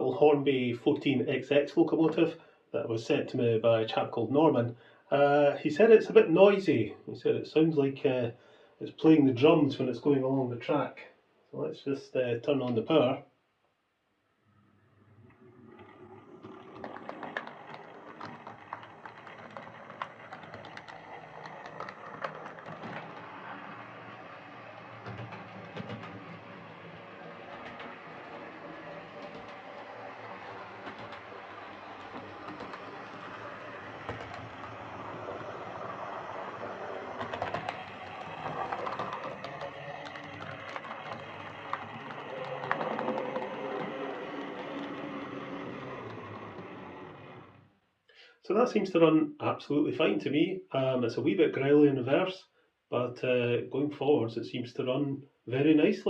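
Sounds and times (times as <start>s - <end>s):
wheels clicking on rails: 15.0s - 47.6s
model train motor whirring: 15.0s - 47.7s.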